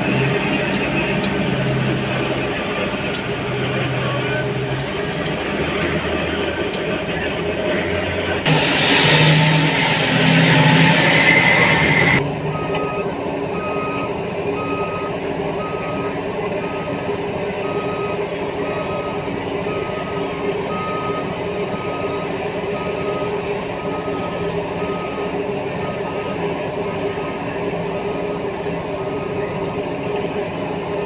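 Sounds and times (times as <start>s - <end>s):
loud rushing noise: 0.0s - 12.2s
diesel engine drone: 0.0s - 31.0s
reversing alarm beeping: 8.5s - 26.5s, 28.0s - 29.7s.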